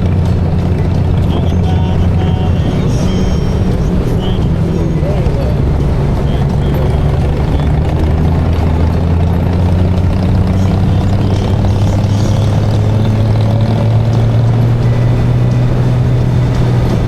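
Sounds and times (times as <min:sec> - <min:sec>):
motorcycle engine cruising: 0:00.0 - 0:17.0
wind and road noise: 0:00.0 - 0:17.0.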